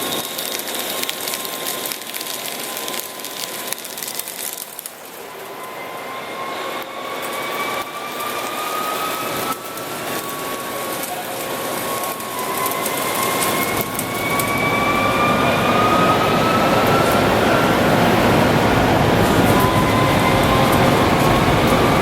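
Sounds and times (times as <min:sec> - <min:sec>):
lathe whine rising in pitch: 0:00.0 - 0:22.0.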